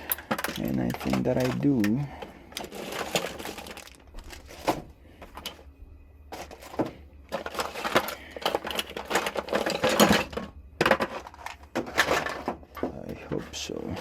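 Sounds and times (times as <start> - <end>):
rummaging through small parts: 0.0 - 14.0.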